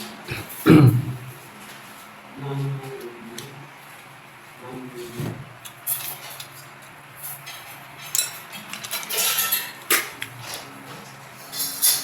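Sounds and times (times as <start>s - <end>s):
utensils clinking on dishes: 5.6s - 12.0s.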